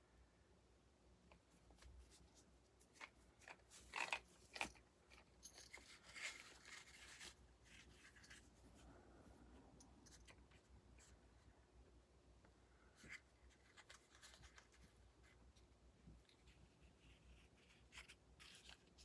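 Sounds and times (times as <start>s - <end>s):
crinkly rustle: 1.5s - 9.4s, 12.9s - 19.0s.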